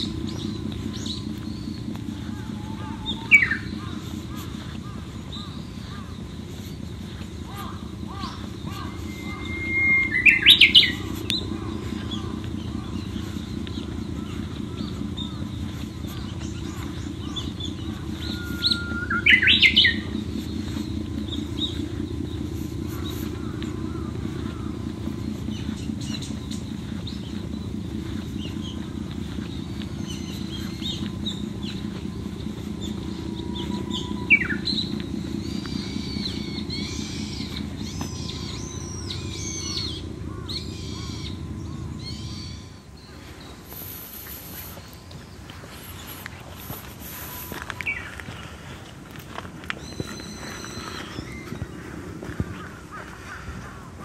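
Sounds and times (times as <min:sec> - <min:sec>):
birds singing: 0:00.0 - 0:54.0
steady low rumble: 0:00.0 - 0:54.0
bird whistling phrase: 0:08.2 - 0:11.6, 0:17.4 - 0:20.2.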